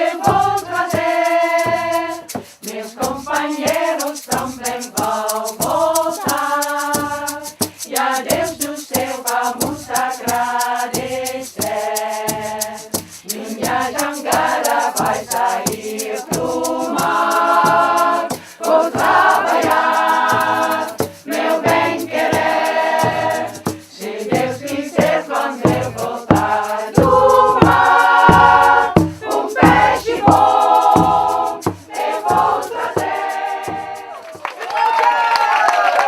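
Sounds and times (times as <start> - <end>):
choir singing held notes: 0.0 - 34.4
low accompaniment: 19.0 - 34.2.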